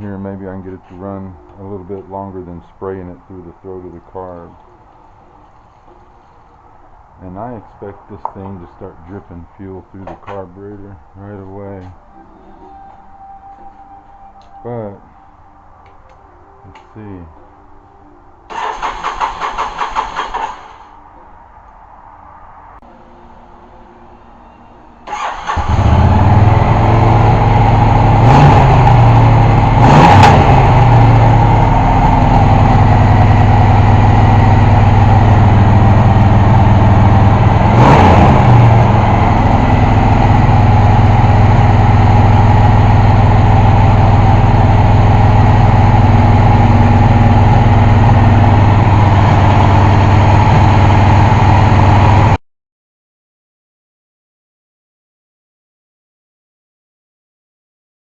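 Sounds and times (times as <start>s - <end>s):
motorcycle engine running: 25.6s - 52.4s.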